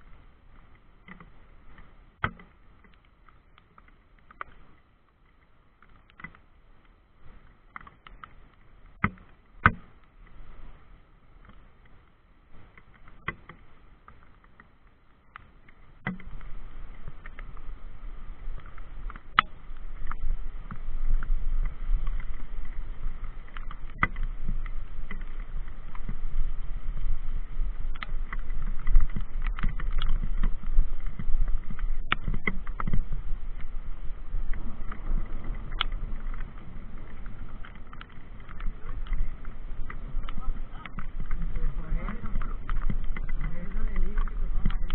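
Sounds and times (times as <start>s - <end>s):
wind noise on microphone: 15.7s - 44.9s
bike clicks and rattles: 18.4s - 44.9s.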